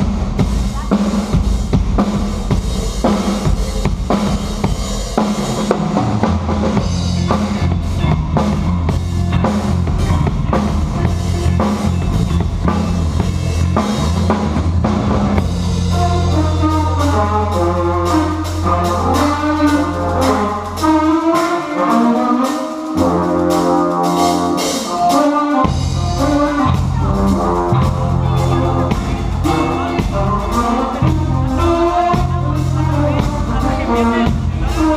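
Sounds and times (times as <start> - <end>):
drum kit playing busy beat: 0.0 - 34.9
sustained low bass notes: 5.9 - 34.9
pitched melodic part: 15.4 - 34.9.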